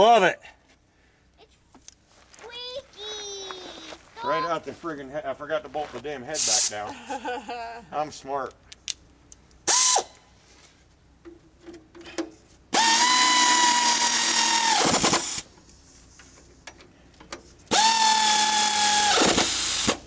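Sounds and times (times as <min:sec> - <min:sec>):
power drill motor whining: 0:12.8 - 0:15.4, 0:17.7 - 0:20.0.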